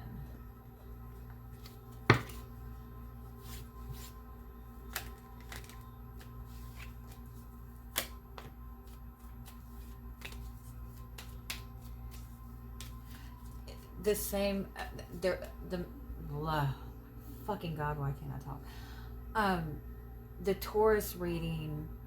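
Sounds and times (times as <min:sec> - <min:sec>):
cards being shuffled: 0:01.5 - 0:02.6, 0:03.3 - 0:13.9.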